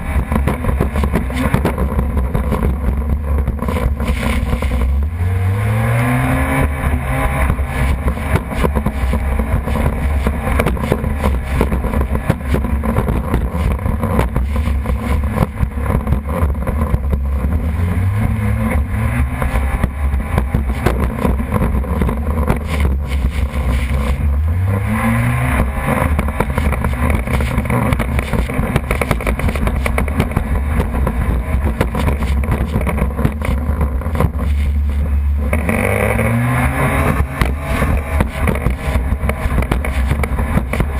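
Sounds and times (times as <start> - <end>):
jet ski engine running hard: 25.4 - 40.9.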